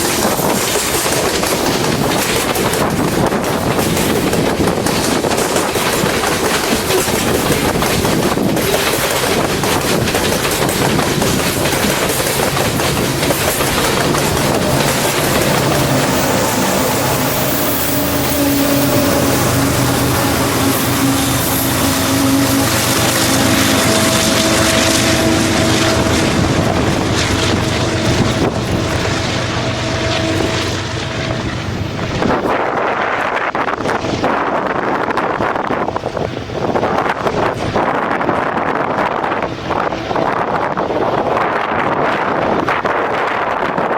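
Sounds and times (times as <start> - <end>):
wheels clattering: 0.0 - 32.5
freight cars rumbling: 0.0 - 32.6
wind noise on microphone: 0.0 - 43.9.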